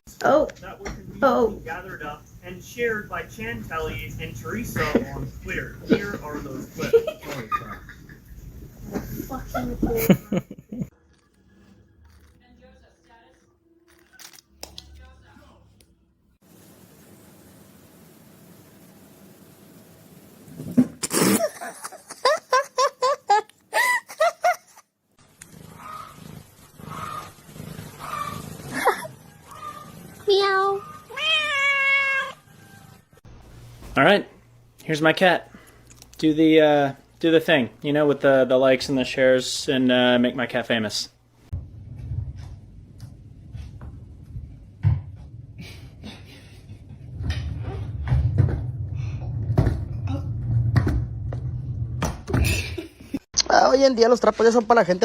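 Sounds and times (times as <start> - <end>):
cat calling: 30.7 - 32.4.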